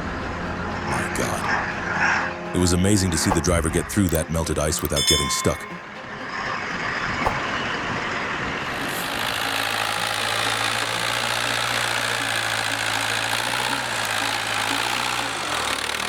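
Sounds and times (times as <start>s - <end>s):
sharp click: 3.3s - 5.8s
heavy vehicle engine running: 6.8s - 16.0s.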